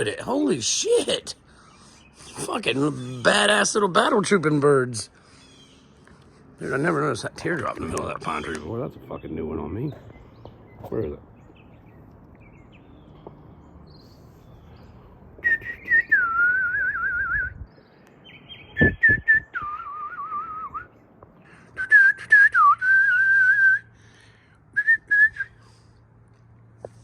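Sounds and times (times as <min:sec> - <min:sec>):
person whistling a tune: 0:15.4 - 0:17.6, 0:18.8 - 0:20.9, 0:21.8 - 0:23.9, 0:24.8 - 0:25.6.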